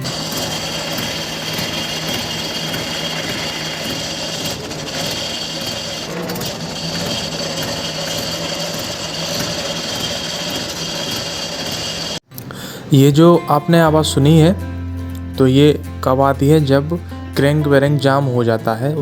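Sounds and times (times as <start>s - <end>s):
high whining tones: 0.0s - 12.2s
tractor diesel engine running: 0.0s - 12.2s.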